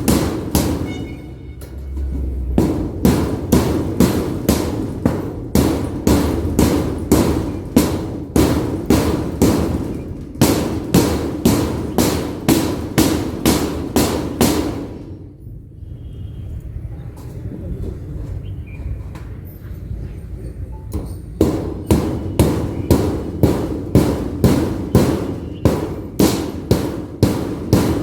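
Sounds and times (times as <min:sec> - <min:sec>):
hammer nailing metal roofing: 0:00.0 - 0:15.4, 0:21.0 - 0:28.0.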